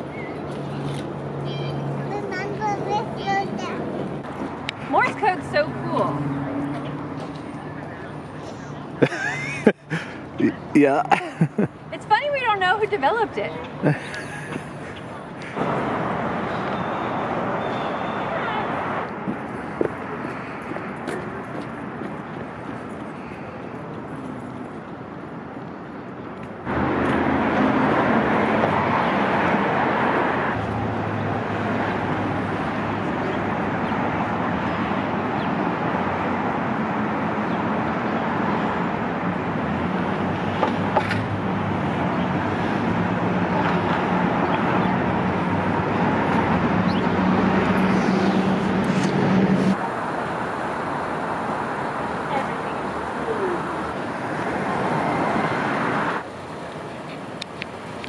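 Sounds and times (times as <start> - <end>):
road noise: 0.0 - 58.0
vehicle engine hum: 26.4 - 58.0.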